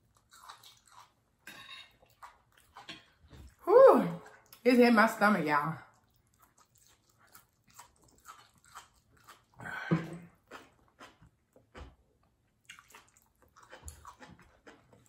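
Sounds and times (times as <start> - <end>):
chewing mouth sounds: 0.0 - 1.2, 5.8 - 15.0.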